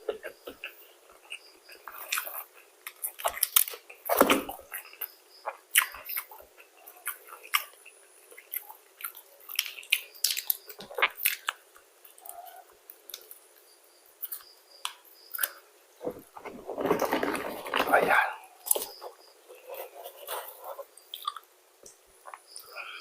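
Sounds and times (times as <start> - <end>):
chewing crispy chicken: 0.0 - 13.6, 16.8 - 21.5.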